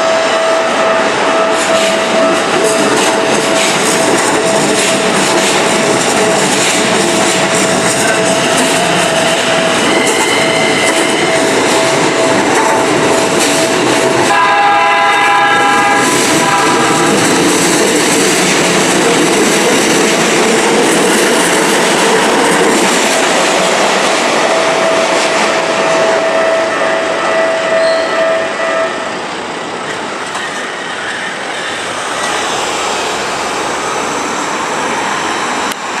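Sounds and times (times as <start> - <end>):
train wheel squeal: 0.0 - 14.3, 24.4 - 32.7
train wheels rumbling and clattering: 0.0 - 36.0.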